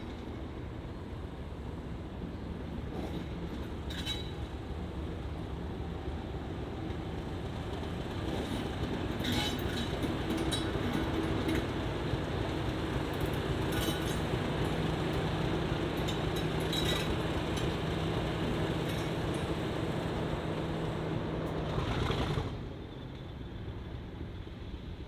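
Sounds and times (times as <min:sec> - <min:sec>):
diesel locomotive engine drone: 0:00.0 - 0:25.0
wheels squeaking on track: 0:08.3 - 0:11.8, 0:12.6 - 0:19.7.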